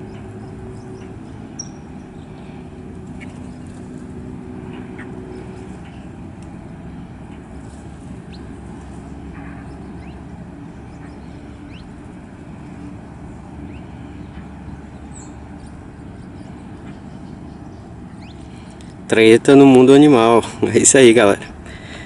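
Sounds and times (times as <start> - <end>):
steady low rumble: 0.0 - 22.0
faint high bird chirps: 0.1 - 2.3.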